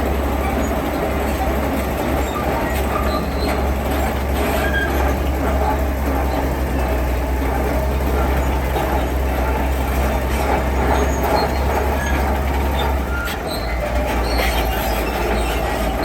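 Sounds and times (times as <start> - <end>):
diesel engine drone: 0.0 - 16.0
faint short squeaks: 11.1 - 16.0.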